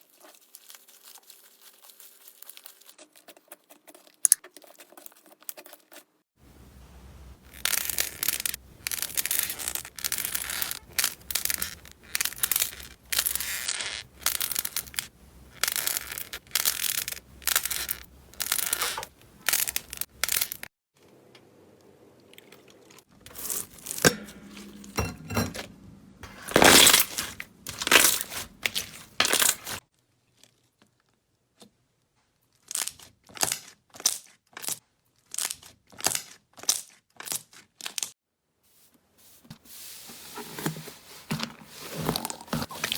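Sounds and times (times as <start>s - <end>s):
slime squelching by hand: 0.0s - 6.0s, 26.2s - 29.8s, 41.0s - 42.9s.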